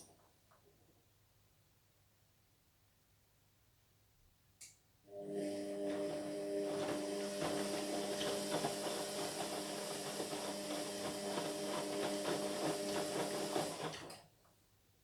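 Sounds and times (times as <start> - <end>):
washing machine hum: 5.1 - 14.2.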